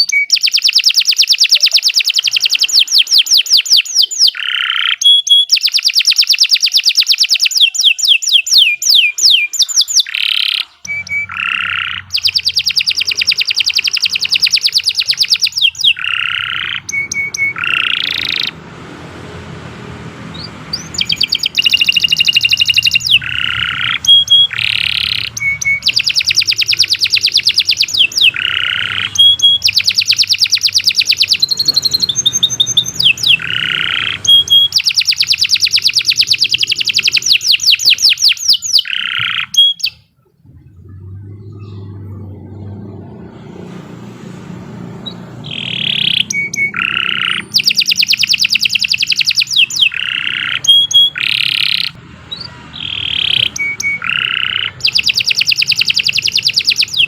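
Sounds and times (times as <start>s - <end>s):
canary singing trills: 0.0s - 18.8s, 19.4s - 57.0s
faint low hum: 40.0s - 49.2s.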